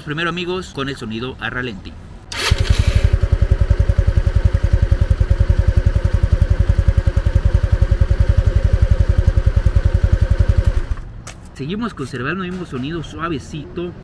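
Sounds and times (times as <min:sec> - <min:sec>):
scooter engine idling: 0:02.4 - 0:11.0.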